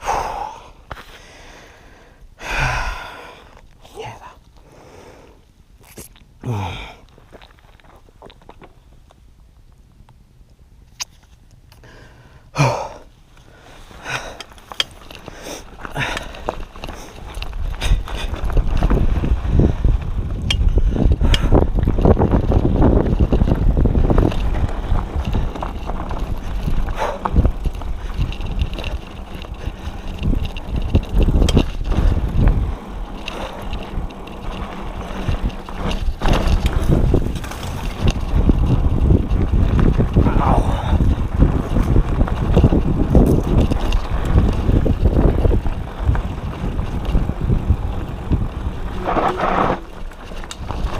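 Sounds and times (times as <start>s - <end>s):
bike clicking and rattling: 7.2s - 50.9s
tyres rumbling over dirt: 13.5s - 50.9s
wind buffeting microphone: 14.0s - 50.9s.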